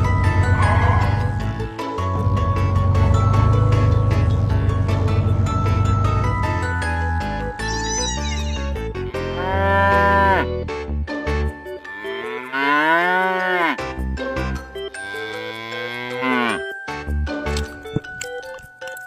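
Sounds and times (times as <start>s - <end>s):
children's background music: 0.0s - 19.0s
cow mooing: 0.3s - 1.3s, 9.0s - 10.5s, 12.0s - 13.8s, 15.0s - 16.7s.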